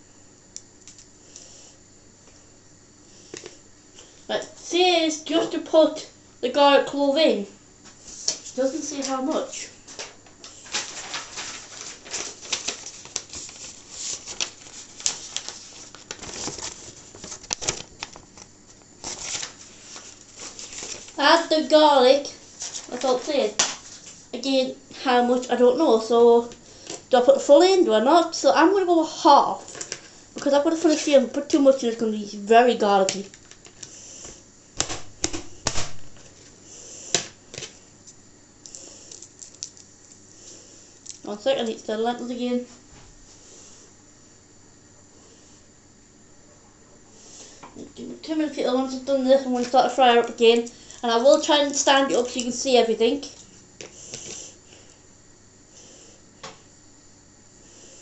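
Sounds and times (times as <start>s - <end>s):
rustling: 10.0s - 18.2s, 19.0s - 21.2s.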